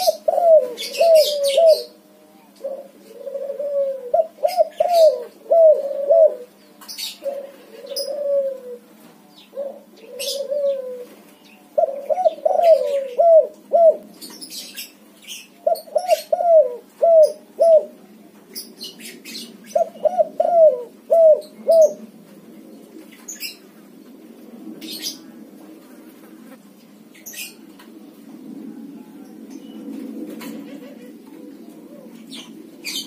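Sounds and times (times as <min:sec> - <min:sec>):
dove cooing: 0:00.0 - 0:08.9, 0:09.5 - 0:14.2, 0:15.4 - 0:18.0, 0:18.6 - 0:23.7, 0:28.4 - 0:33.0.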